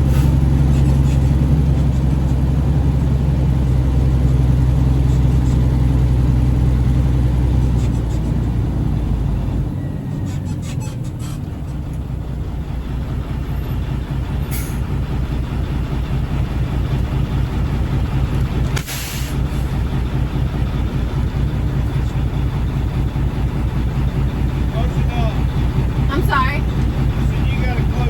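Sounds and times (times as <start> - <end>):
air brakes hissing: 0.0 - 0.4, 14.5 - 14.9, 18.8 - 19.8
diesel truck engine droning: 0.0 - 28.0
hiss of air: 18.8 - 19.4.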